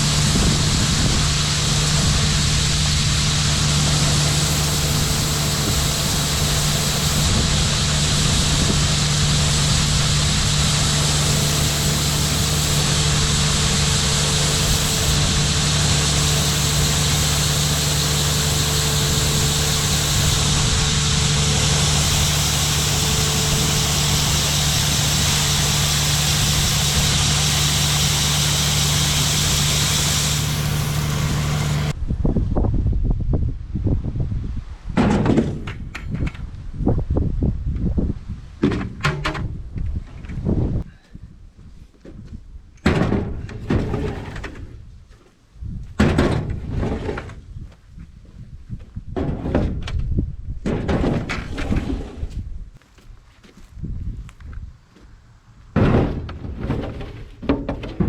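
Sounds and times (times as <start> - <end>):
farm machinery engine humming: 0.0 - 32.0
mechanical hiss: 4.1 - 31.9.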